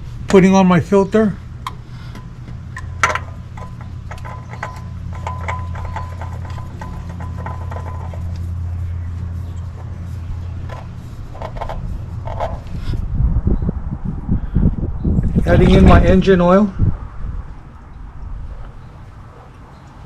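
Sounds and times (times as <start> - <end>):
steady low hum: 0.0 - 20.0
oil filter clicking and scraping: 1.6 - 13.1.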